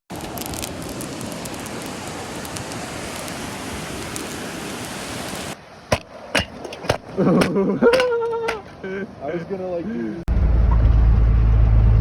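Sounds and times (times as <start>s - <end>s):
steady hiss: 0.2s - 6.3s
sharp knocks: 5.9s - 8.8s.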